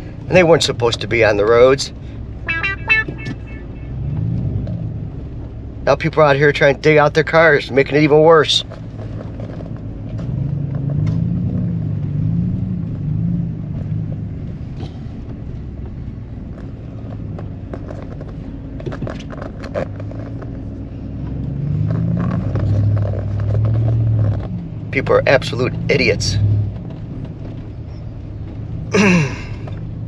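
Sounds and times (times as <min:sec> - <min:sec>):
road noise: 0:00.0 - 0:30.0
truck engine while driving: 0:00.0 - 0:30.0.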